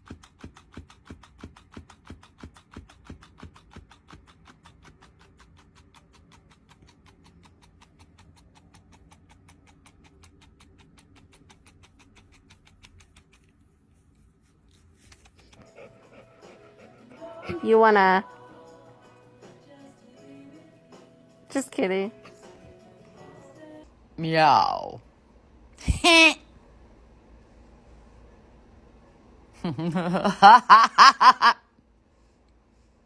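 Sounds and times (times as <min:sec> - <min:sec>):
faint music with ticking beat: 0:15.6 - 0:24.0.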